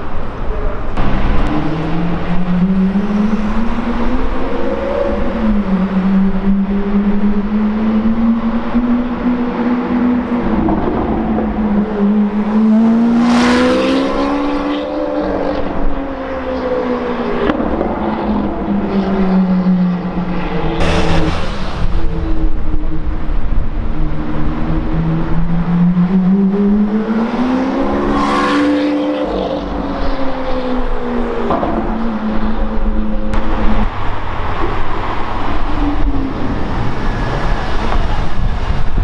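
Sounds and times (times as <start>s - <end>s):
engine revving bursts: 20.8s - 22.1s.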